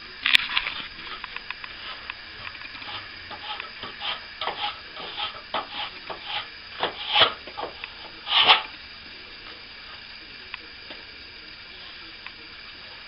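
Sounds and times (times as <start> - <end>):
hand tool scraping plaster: 2.8 - 8.7.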